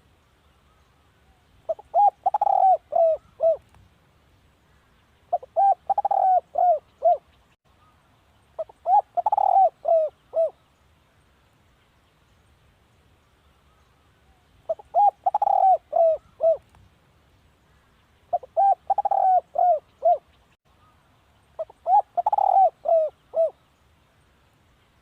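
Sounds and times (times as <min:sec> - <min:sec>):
dove cooing: 0:01.7 - 0:03.6, 0:05.3 - 0:07.3, 0:08.6 - 0:10.6, 0:14.7 - 0:16.6, 0:18.3 - 0:20.3, 0:21.6 - 0:23.6.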